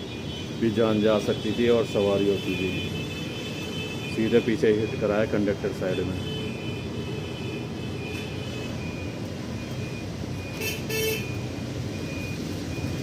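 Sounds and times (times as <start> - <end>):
vehicle engines running: 0.0 - 13.0
car horn toot: 10.6 - 11.4.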